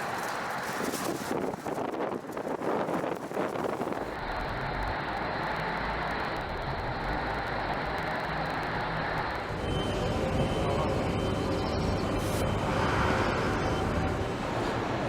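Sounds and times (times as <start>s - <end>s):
machine running with low rumble: 0.0s - 15.0s
faint high whine: 4.3s - 15.0s.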